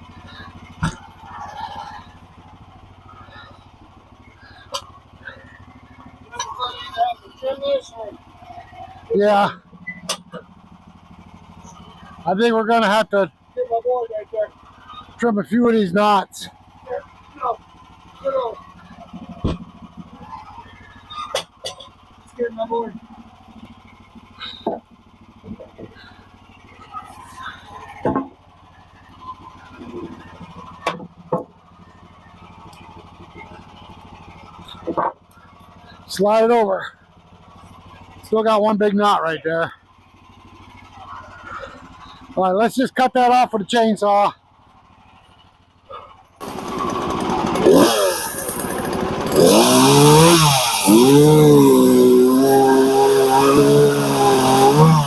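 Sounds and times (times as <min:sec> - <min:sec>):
chainsaw revving: 0:00.0 - 0:03.7, 0:04.3 - 0:06.4, 0:46.4 - 0:55.0
small gasoline engine idling: 0:00.0 - 0:55.0.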